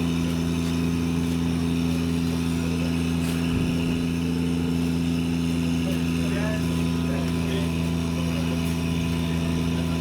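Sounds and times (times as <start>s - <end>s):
engine humming steadily: 0.0s - 10.0s.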